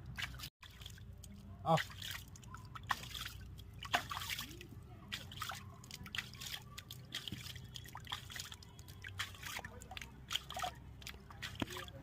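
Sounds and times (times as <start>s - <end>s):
water splashing and dripping: 0.0s - 12.0s.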